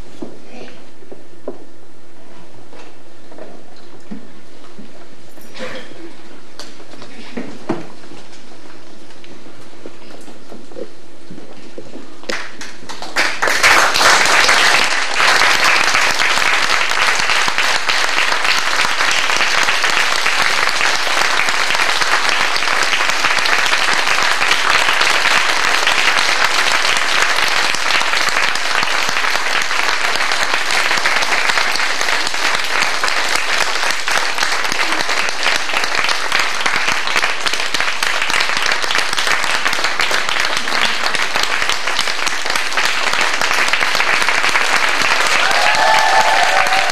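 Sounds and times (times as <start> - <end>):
audience applause: 12.3 - 46.9.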